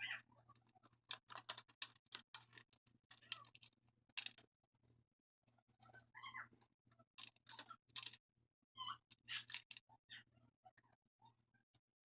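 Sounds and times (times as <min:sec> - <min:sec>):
faint irregular clicks and taps: 0:00.5 - 0:08.3.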